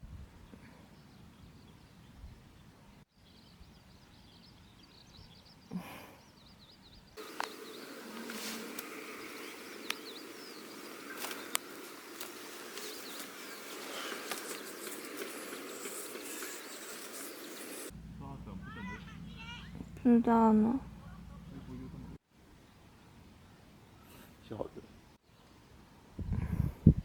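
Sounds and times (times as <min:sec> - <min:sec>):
small birds chirping: 0:00.4 - 0:26.3
low rumbling noise: 0:17.6 - 0:22.2.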